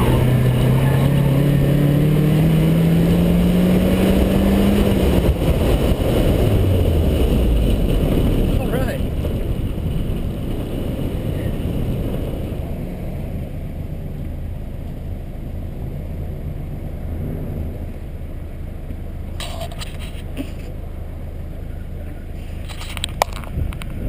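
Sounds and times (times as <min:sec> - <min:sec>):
car engine running: 0:00.0 - 0:24.0
road noise: 0:00.0 - 0:24.0.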